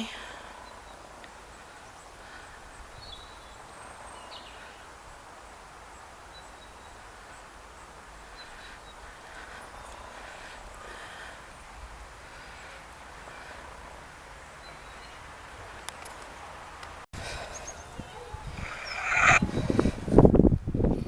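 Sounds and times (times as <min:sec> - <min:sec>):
outdoor background hiss: 0:00.0 - 0:21.0
faint bird chirps: 0:17.4 - 0:19.5.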